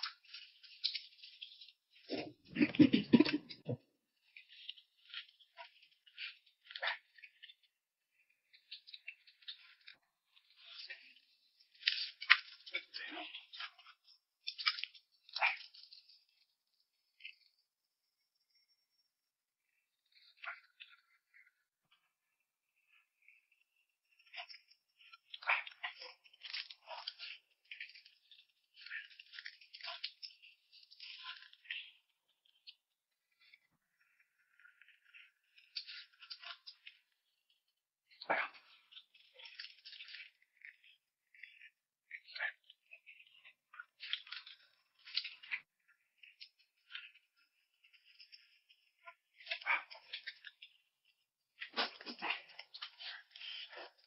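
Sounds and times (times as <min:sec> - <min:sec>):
slurping and chewing noodles: 0:23.0 - 0:50.9, 0:51.6 - 0:54.0.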